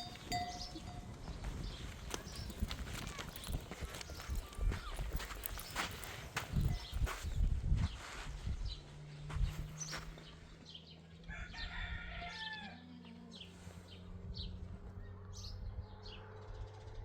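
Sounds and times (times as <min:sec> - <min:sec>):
rooster crowing: 0:11.2 - 0:13.0.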